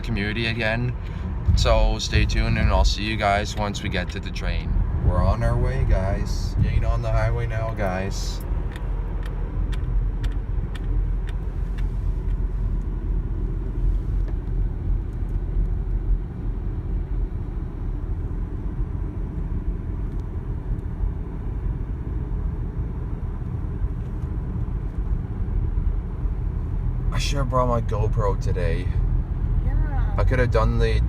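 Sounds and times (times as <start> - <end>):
car tyre and engine rumble: 0.0 - 31.0.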